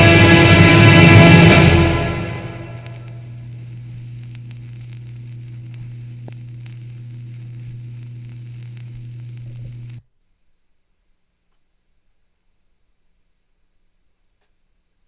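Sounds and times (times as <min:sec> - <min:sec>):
low playback hum: 0:00.0 - 0:15.0
vinyl crackles and clicks: 0:02.6 - 0:12.2.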